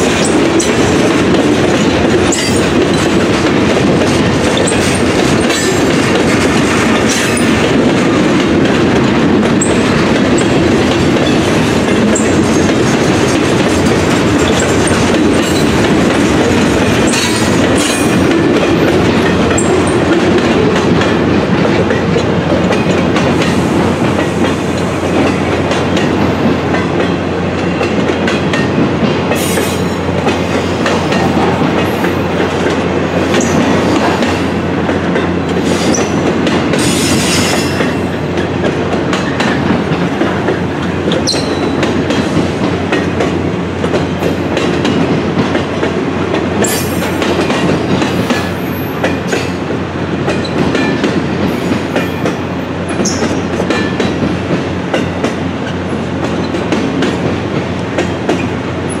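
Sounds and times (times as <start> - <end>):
freight train wheels rumbling: 0.0 - 59.0
high-pitched wheel squeals: 41.2 - 41.7.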